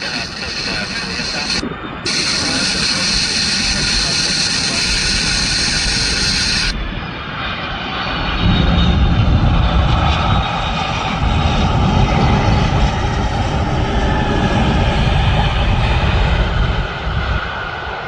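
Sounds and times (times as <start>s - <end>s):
jet engines whining: 0.0s - 9.8s.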